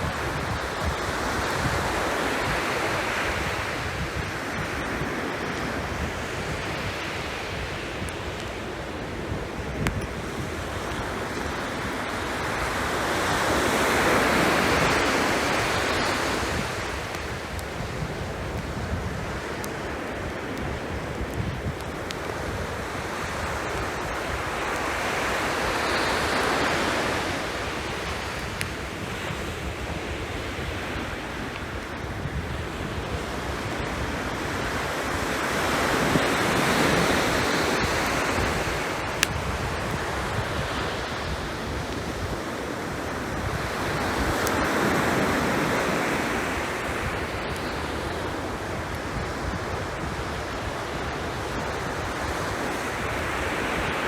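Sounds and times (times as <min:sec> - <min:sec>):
surf washing onto shore: 0:00.0 - 0:54.0
campfire popping: 0:07.6 - 0:12.7, 0:13.4 - 0:33.0, 0:35.1 - 0:50.2.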